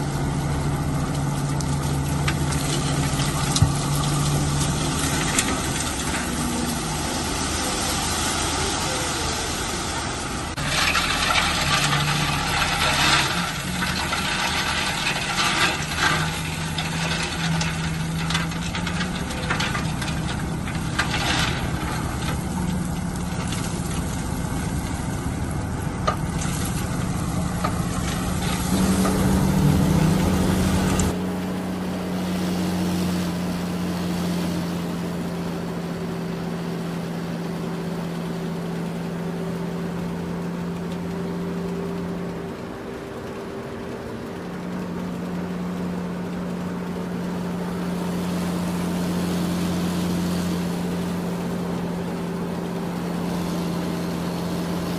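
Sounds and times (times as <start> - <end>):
diesel machinery running: 0.0 - 54.9
rattling and scraping rock: 1.1 - 7.5, 10.6 - 31.2.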